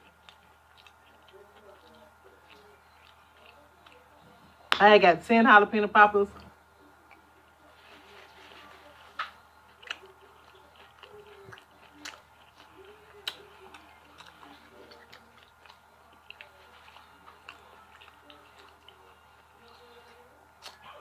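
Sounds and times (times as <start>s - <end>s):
chewing mouth sounds: 0.0s - 4.6s, 8.0s - 21.0s.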